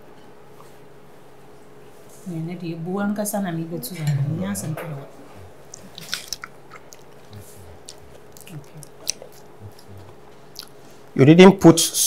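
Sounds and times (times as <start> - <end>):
person chewing food: 5.6 - 11.0.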